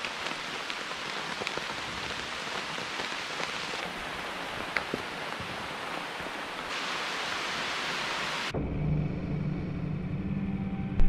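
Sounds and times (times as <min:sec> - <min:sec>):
rain falling: 0:00.0 - 0:08.5.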